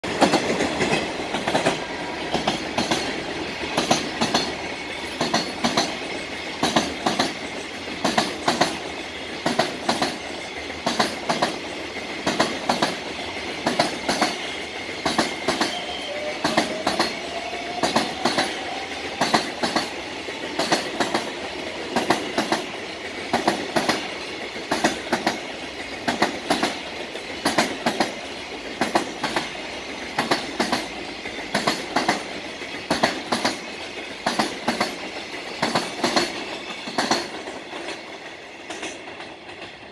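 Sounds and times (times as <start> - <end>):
train rolling rumble: 0.0 - 39.9
train wheels clattering clickety-clack: 0.0 - 39.9.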